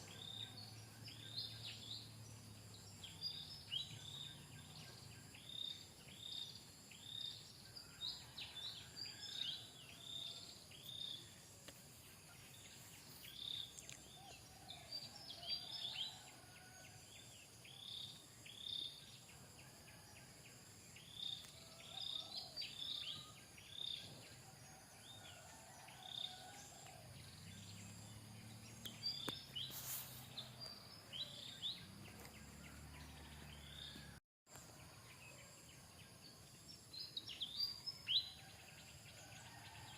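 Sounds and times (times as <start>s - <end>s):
small birds chirping: 0.0s - 16.2s, 26.8s - 34.2s.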